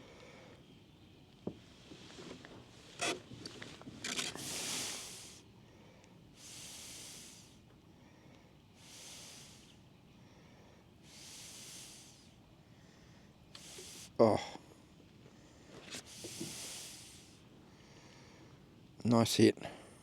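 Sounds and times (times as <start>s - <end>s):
breathing close to microphone: 4.4s - 14.7s, 15.3s - 18.7s.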